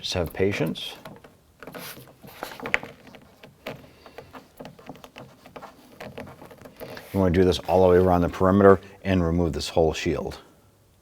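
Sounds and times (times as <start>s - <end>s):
razor blade scraping plastic: 1.0s - 8.0s.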